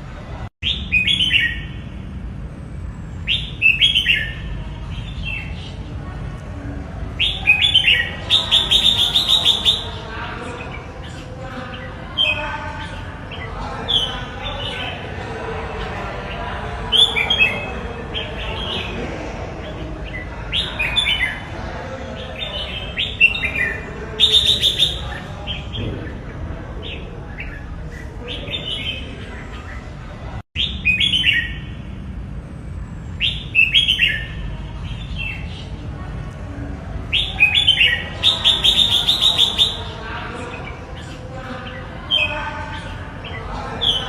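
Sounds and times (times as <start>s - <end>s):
steady background noise: 0.0s - 44.0s.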